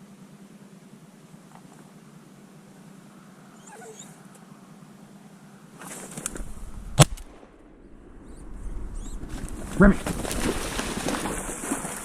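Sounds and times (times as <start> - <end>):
dog whimpering: 3.6 - 4.2
rustling: 5.8 - 7.3, 8.8 - 12.0.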